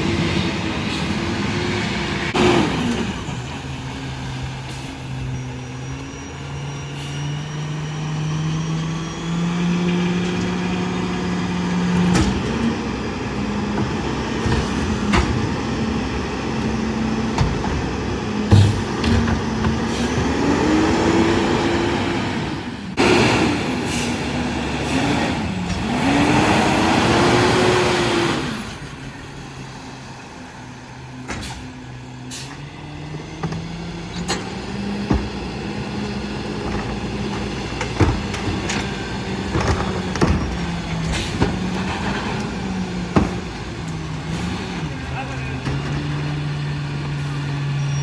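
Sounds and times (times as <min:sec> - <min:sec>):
garbage truck engine revving: 0:00.0 - 0:48.0
clanks and knocks: 0:17.2 - 0:20.3, 0:36.5 - 0:44.0.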